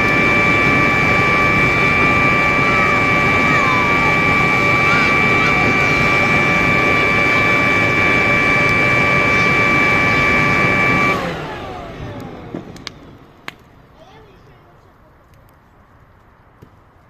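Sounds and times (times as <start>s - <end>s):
motor machine whining: 0.0s - 13.5s.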